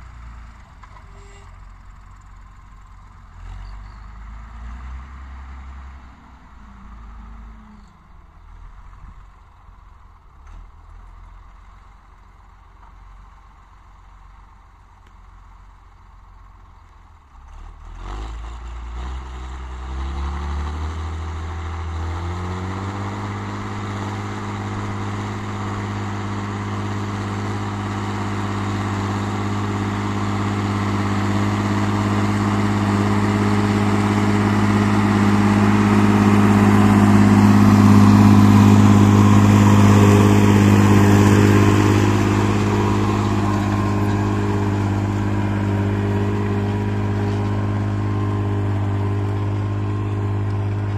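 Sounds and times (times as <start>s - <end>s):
tractor diesel engine revving: 17.4s - 50.9s.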